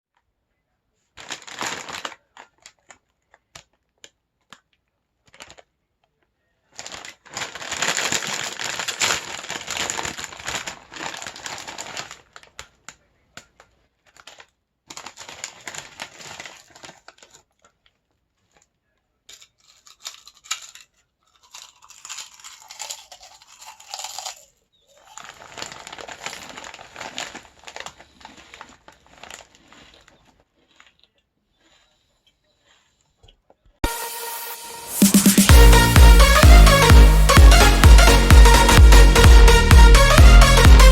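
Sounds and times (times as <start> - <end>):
chip bag crinkling and tearing: 1.1 - 5.7, 6.6 - 33.0.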